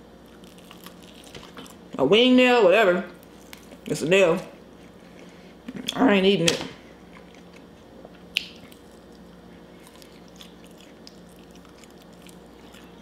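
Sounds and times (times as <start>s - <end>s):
faint steady hum: 0.0s - 13.0s
faint chewing: 0.2s - 2.0s, 3.1s - 4.0s, 7.0s - 13.0s.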